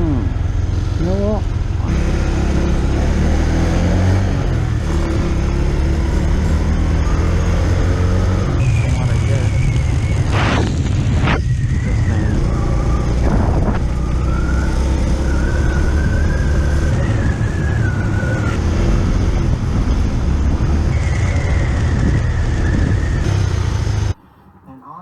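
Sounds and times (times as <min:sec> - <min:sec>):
motorcycle engine rumble: 0:00.0 - 0:03.4, 0:04.2 - 0:24.8
wind noise: 0:06.5 - 0:24.2.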